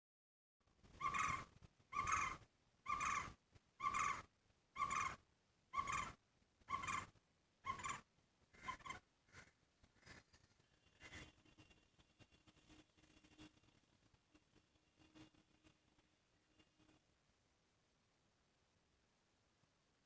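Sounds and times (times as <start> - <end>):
bird trilled call: 1.0 - 8.0, 8.6 - 10.2.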